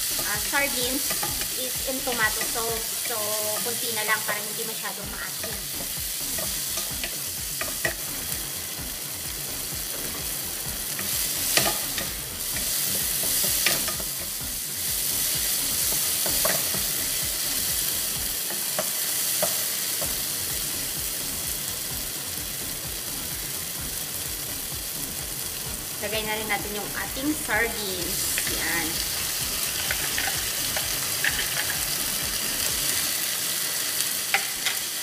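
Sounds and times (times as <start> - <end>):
vegetables sizzling in oil: 0.0 - 35.0.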